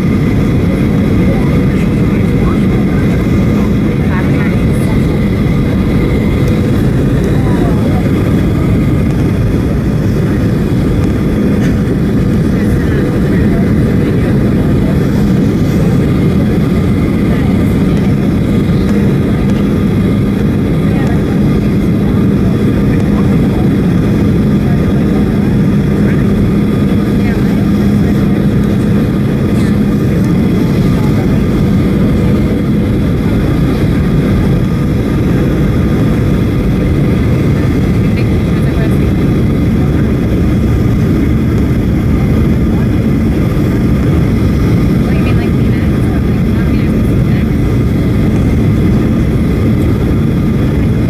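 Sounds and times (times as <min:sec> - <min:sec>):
airplane cabin jet engine rumble: 0:00.0 - 0:51.0.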